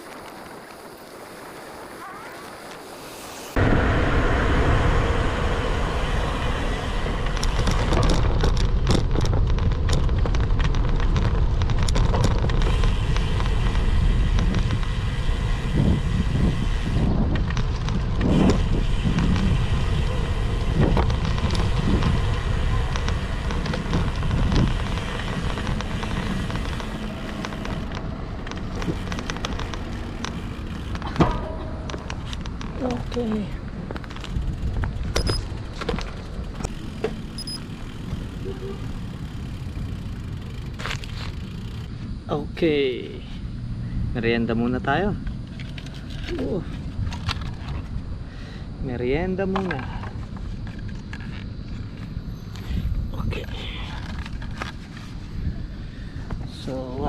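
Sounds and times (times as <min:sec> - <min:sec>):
road noise: 0:00.0 - 0:57.0
traffic: 0:00.0 - 0:57.0
wind rumble on microphone: 0:00.0 - 0:57.0
bike clicks and knocks: 0:07.0 - 0:42.0, 0:45.1 - 0:48.1, 0:49.3 - 0:55.6.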